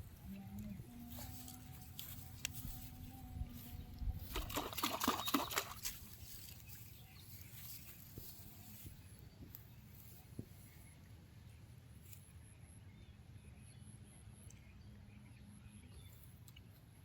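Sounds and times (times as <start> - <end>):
faint steady hum: 0.0 - 5.0
water splashing: 4.2 - 6.6.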